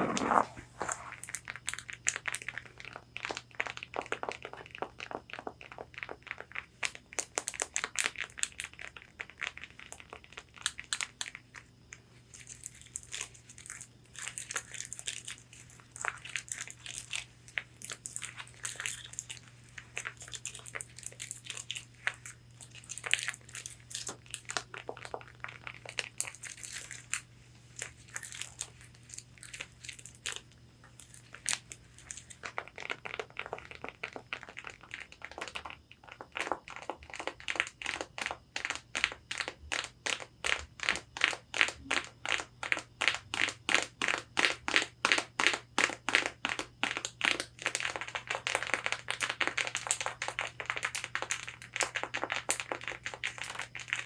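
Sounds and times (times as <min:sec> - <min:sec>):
fingernails scratching on fabric: 0:00.0 - 0:01.2.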